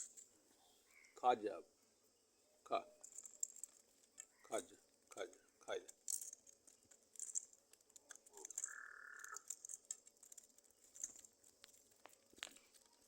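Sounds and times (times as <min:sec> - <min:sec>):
buzzy bird call: 0:08.6 - 0:09.4.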